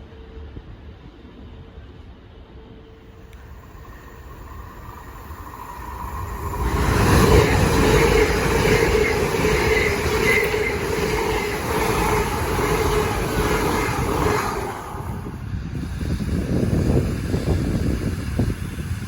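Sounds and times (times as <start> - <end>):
train rumbling past: 0.0 - 19.0
whining tone: 3.3 - 15.5.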